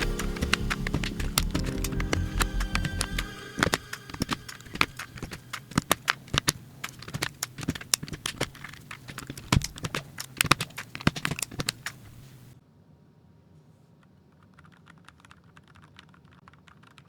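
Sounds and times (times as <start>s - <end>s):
background music: 0.0s - 6.5s
mechanical keyboard typing: 0.0s - 12.4s, 14.3s - 17.0s.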